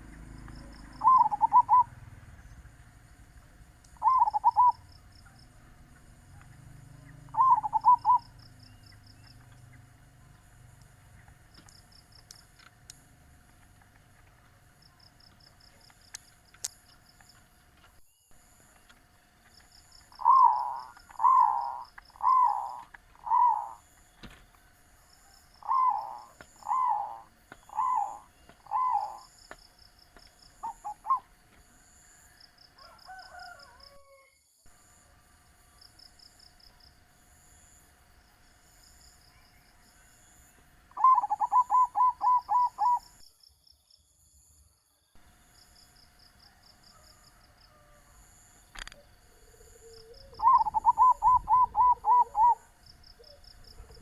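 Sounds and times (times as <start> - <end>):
dove cooing: 0.0 - 2.8, 3.9 - 8.6, 20.0 - 23.8, 25.6 - 29.5, 30.6 - 31.3, 41.0 - 43.2, 48.9 - 54.0
pulsing insect chirps: 0.0 - 13.2, 14.8 - 32.4, 35.6 - 47.1, 48.2 - 54.0.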